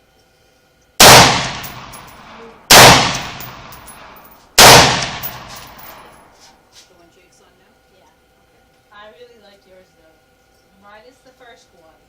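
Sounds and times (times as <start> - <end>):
rifle shots with echo: 1.0 - 6.0.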